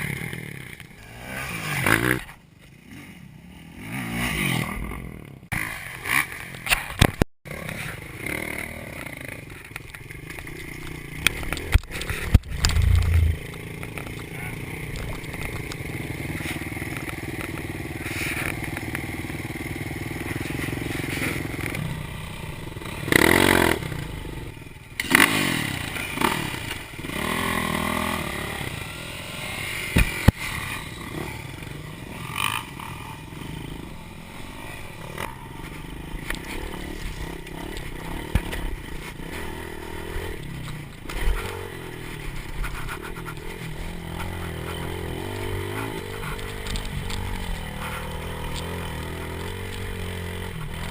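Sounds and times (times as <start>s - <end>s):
dirt bike engine revving: 11.9s - 13.8s, 15.8s - 40.4s, 41.0s - 50.9s.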